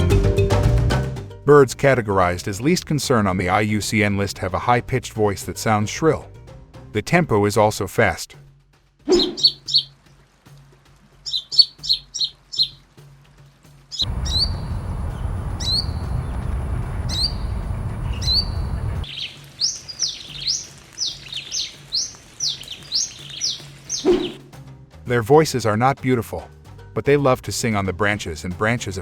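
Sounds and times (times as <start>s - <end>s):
shrill sunbird calls: 9.1s - 10.0s, 11.2s - 12.8s, 13.9s - 24.4s
steady rushing background: 14.1s - 19.1s.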